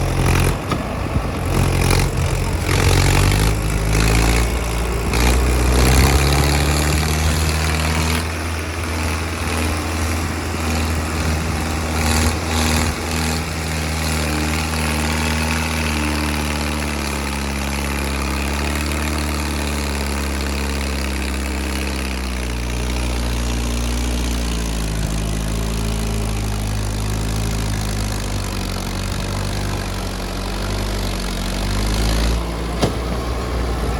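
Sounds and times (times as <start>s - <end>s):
knocks and rattles: 0.0s - 8.2s, 32.7s - 33.2s
tractor diesel engine under load: 0.0s - 33.9s.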